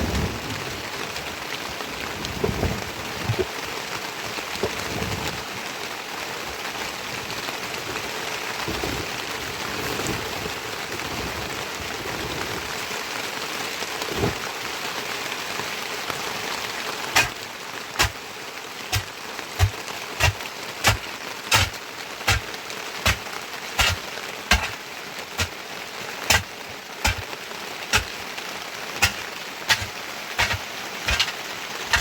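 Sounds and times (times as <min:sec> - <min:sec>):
heavy rain: 0:00.0 - 0:32.0
sharp knocks: 0:23.8 - 0:24.8, 0:27.0 - 0:27.2, 0:29.0 - 0:31.3.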